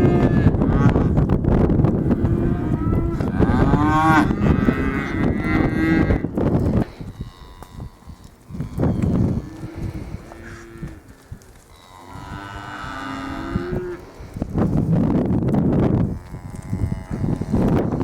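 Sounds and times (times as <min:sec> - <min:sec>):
cattle mooing: 0:02.0 - 0:06.3, 0:06.9 - 0:14.0, 0:16.1 - 0:18.0.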